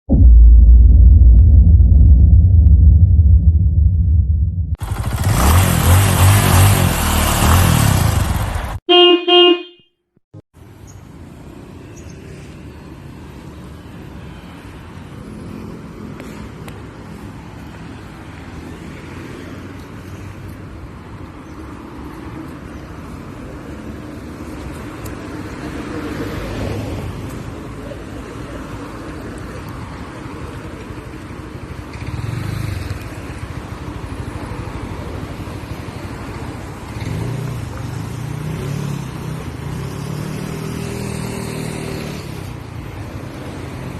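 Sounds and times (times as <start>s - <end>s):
street traffic noise: 4.8s - 9.8s, 10.5s - 43.9s
car horn toot: 8.9s - 9.9s
vehicles passing: 10.6s - 43.9s.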